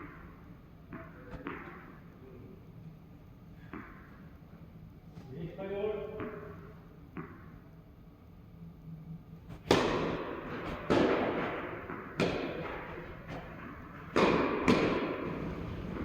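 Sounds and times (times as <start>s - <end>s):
tennis ball pops with echo: 9.6s - 16.0s.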